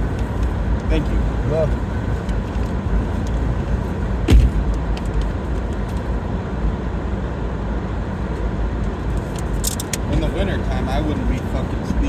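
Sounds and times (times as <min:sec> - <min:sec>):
car cabin rumble: 0:00.0 - 0:06.2
sharp knock: 0:04.3 - 0:04.7.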